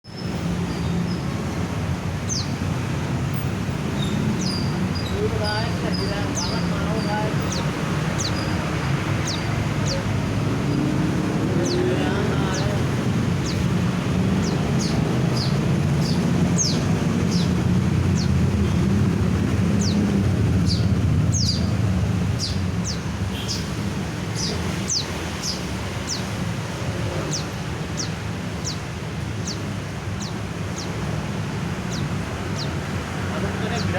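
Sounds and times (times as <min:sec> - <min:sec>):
low traffic rumble: 0:00.0 - 0:33.9
bird high chirps: 0:02.2 - 0:02.7, 0:03.3 - 0:18.9, 0:19.7 - 0:26.5, 0:27.2 - 0:31.2.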